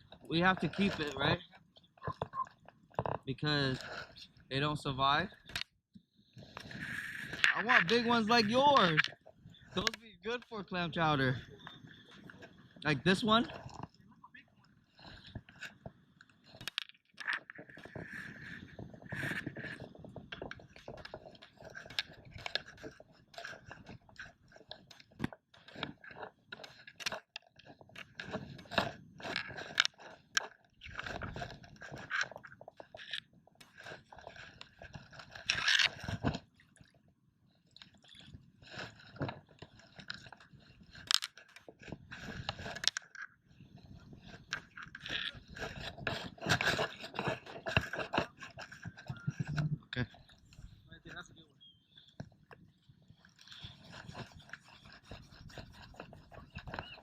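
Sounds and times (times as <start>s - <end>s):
digging in wet sand: 53.1s - 57.0s.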